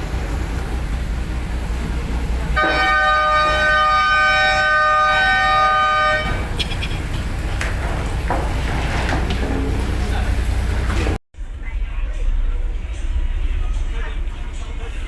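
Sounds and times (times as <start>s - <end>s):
boat engine rumble: 0.0s - 15.0s
horn blast: 2.5s - 6.6s.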